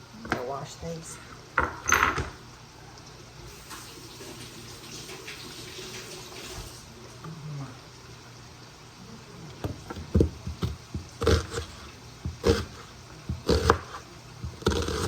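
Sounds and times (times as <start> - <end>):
kitchen knocks and thuds: 9.6 - 11.6, 12.2 - 12.6, 13.3 - 13.8.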